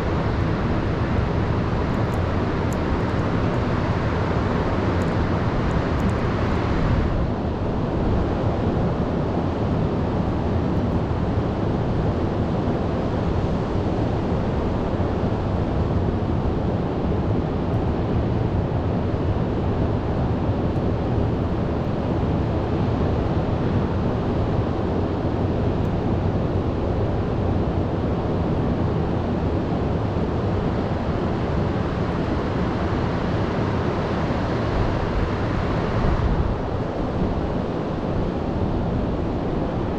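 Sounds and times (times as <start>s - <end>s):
wind on microphone: 29.7s - 39.9s.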